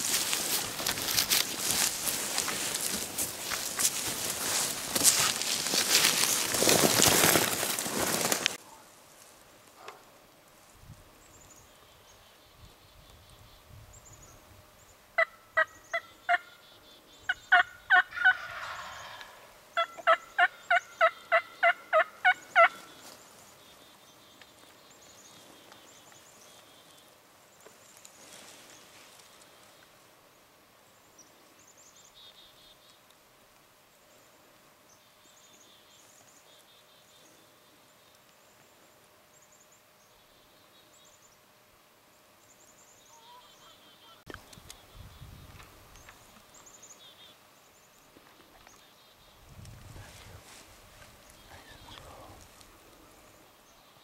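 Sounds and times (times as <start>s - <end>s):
wild turkey yelps: 15.2s - 23.0s, 43.1s - 44.2s.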